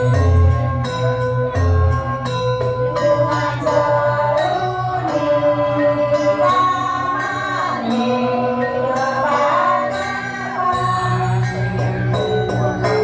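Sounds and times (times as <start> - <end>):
gamelan with pulsing low beat: 0.0 - 13.0
voices singing held sliding notes: 3.0 - 13.0.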